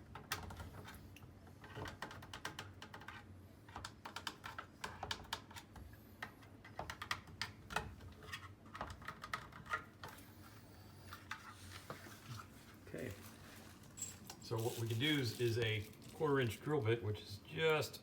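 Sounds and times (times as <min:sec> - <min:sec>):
hard objects clicking and tapping: 0:01.6 - 0:10.2.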